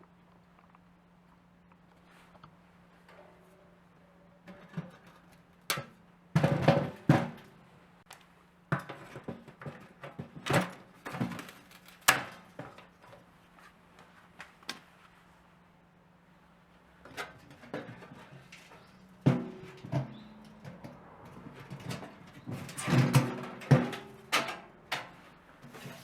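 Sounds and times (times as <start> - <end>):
knocks and clatters: 17.1 - 26.0.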